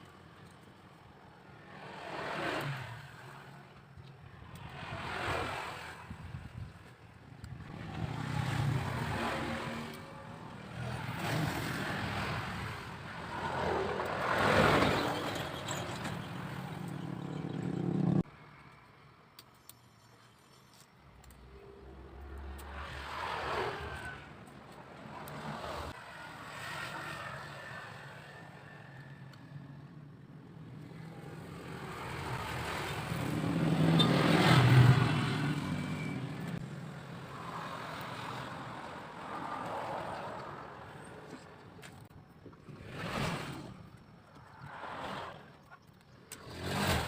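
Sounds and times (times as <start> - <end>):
motor vehicle passing: 7.6 - 18.3, 21.5 - 30.0, 30.6 - 41.9.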